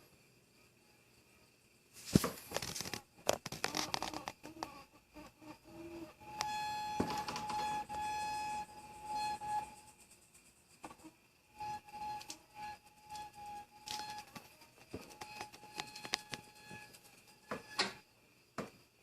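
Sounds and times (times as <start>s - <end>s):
high ringing tone: 6.2s - 9.9s, 15.0s - 18.1s.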